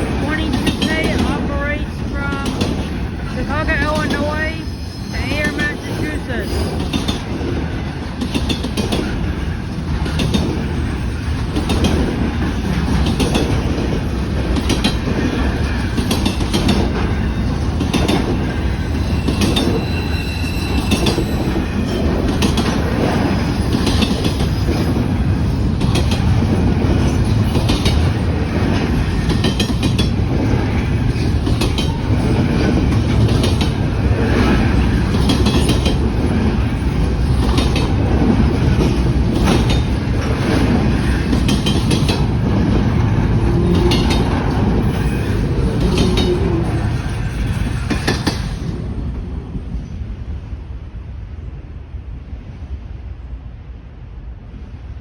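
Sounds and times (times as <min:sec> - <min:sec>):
railroad cars rumbling past: 0:00.0 - 0:55.0
wheels clicking over rail joints: 0:06.8 - 0:19.8, 0:20.9 - 0:48.8
faint high wheel squeal: 0:19.0 - 0:22.0.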